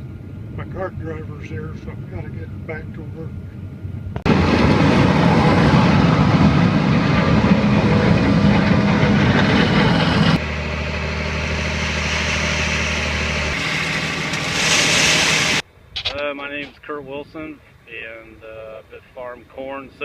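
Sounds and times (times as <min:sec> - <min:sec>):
farm machinery engine: 0:04.2 - 0:15.6.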